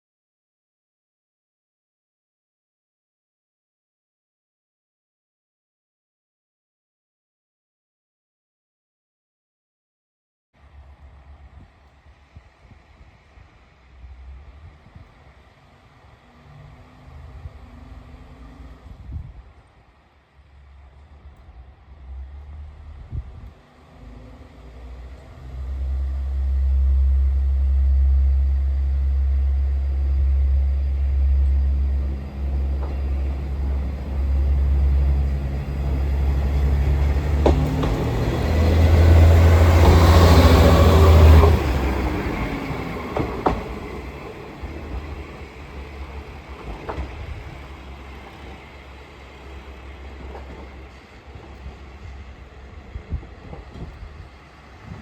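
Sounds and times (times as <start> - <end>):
diesel railcar engine running: 10.6 - 55.0
train wheels clacking: 29.1 - 55.0.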